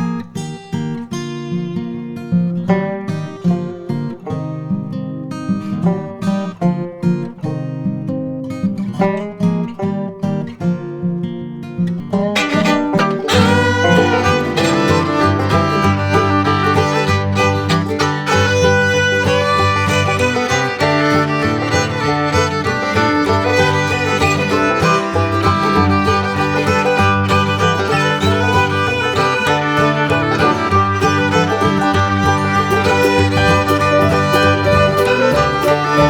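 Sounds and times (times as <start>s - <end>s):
plucked string accompaniment: 1.2s - 36.0s
fiddle playing: 12.4s - 36.0s.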